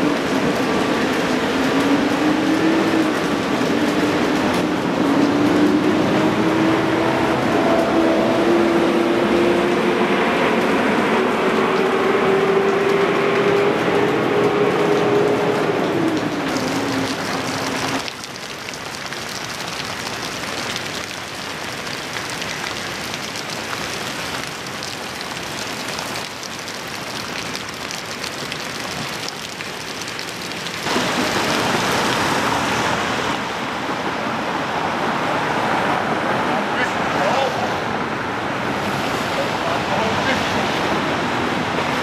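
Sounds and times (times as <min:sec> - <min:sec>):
floodwater rushing: 0:00.0 - 0:42.0
heavy rain hissing: 0:14.7 - 0:18.1, 0:21.2 - 0:42.0.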